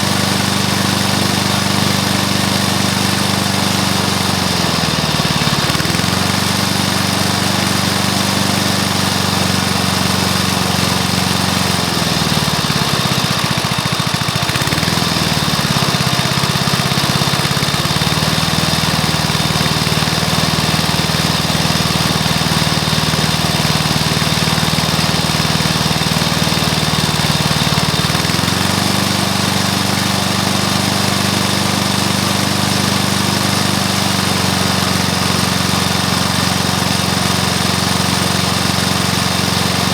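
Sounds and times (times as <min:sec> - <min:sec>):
lawnmower engine running: 0:00.0 - 0:39.9.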